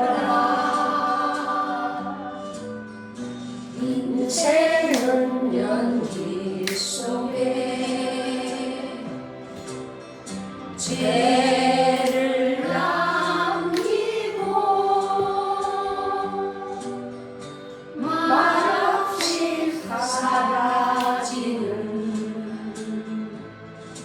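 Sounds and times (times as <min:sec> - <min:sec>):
person singing: 0:00.0 - 0:02.6, 0:03.8 - 0:09.2, 0:18.0 - 0:23.3
backing music: 0:00.0 - 0:24.0.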